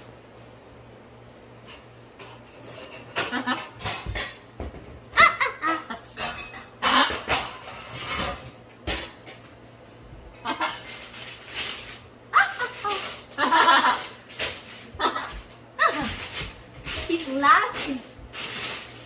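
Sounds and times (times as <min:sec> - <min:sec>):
parrot squawking and chattering: 0:06.8 - 0:07.5, 0:10.4 - 0:11.1, 0:12.3 - 0:14.2, 0:14.9 - 0:16.1.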